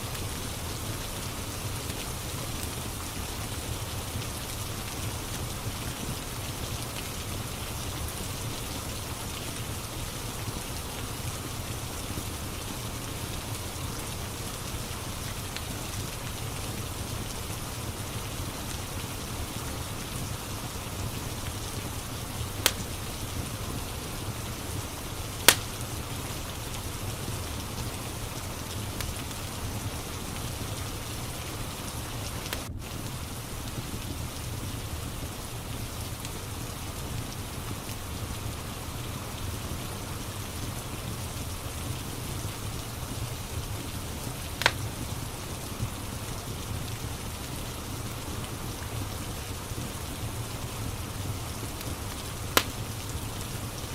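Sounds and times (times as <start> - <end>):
steady rain: 0.0 - 53.9
wood fire crackling: 0.0 - 53.9
sharp fire pops: 21.7 - 23.2, 25.4 - 26.1, 32.0 - 35.3, 44.4 - 45.0, 52.5 - 53.1.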